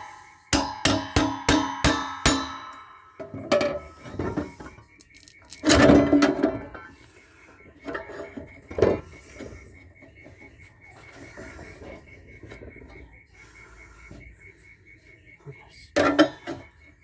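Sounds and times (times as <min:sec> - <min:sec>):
metal parts clanking and rattling: 0:00.6 - 0:06.8.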